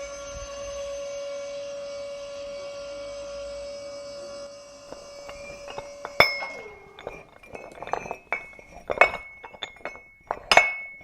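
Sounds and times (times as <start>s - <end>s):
small hard pieces clinking: 4.9s - 11.0s.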